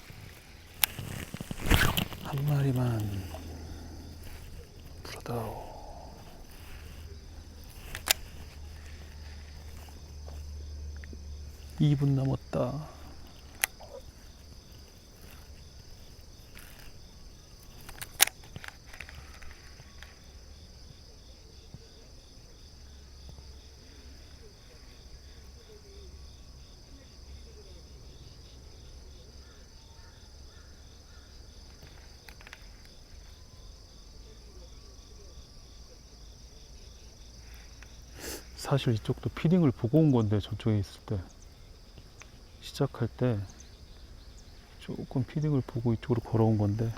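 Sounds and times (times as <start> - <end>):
insects chirring: 0.0 - 46.9
sharp click: 17.9 - 19.2.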